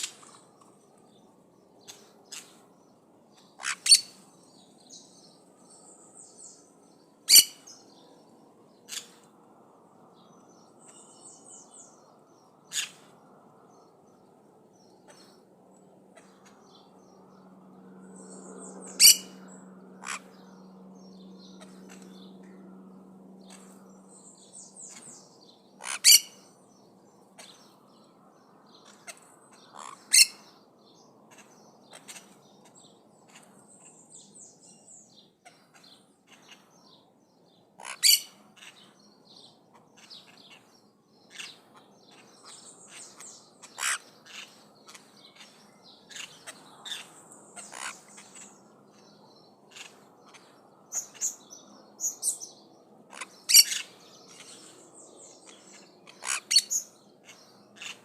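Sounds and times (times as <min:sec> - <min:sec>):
parrots loud sharp calls: 0:01.9 - 0:02.6, 0:03.6 - 0:04.2, 0:07.2 - 0:07.8, 0:08.9 - 0:09.3, 0:12.7 - 0:13.1, 0:18.9 - 0:19.4, 0:20.0 - 0:20.4, 0:25.8 - 0:26.5, 0:28.8 - 0:30.5, 0:37.8 - 0:38.9, 0:41.3 - 0:48.6, 0:49.7 - 0:51.4, 0:53.1 - 0:54.6, 0:56.0 - 0:58.0.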